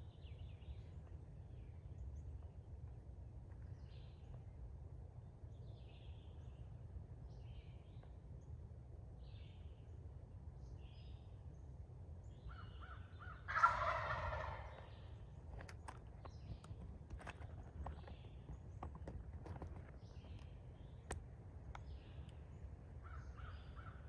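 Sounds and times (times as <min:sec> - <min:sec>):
small birds chirping: 0:12.3 - 0:24.0
turkey gobbling: 0:13.5 - 0:15.0.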